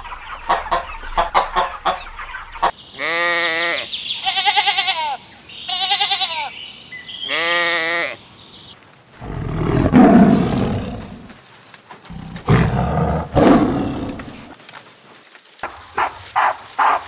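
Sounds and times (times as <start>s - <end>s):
big cat roaring: 9.2s - 11.4s, 12.1s - 14.5s.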